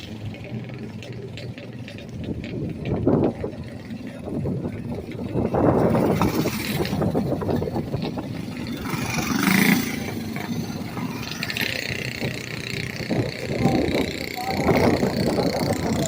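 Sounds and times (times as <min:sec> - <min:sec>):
small racing engines passing: 0:04.8 - 0:16.0.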